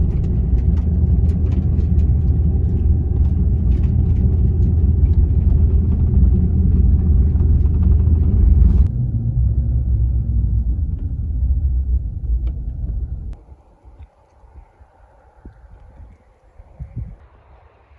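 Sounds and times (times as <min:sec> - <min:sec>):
rattles and clicks: 0:00.0 - 0:08.9
vehicle low rumble: 0:00.0 - 0:17.9.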